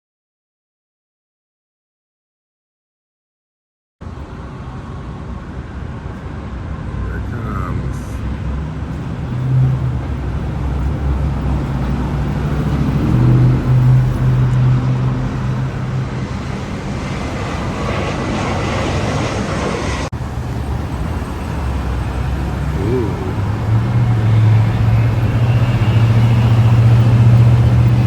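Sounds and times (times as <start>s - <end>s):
road traffic rumble: 4.0s - 28.0s
vehicle engine hum: 4.0s - 28.0s
vehicle passing close: 7.0s - 28.0s.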